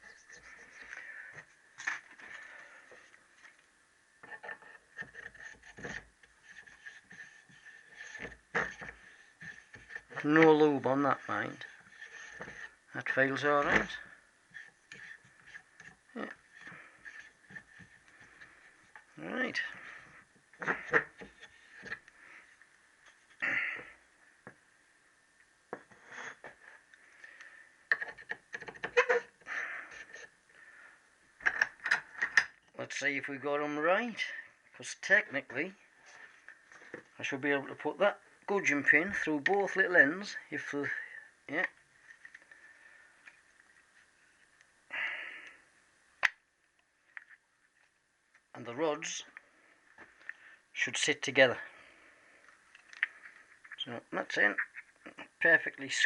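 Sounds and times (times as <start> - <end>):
light metal scraping: 4.2 - 22.4.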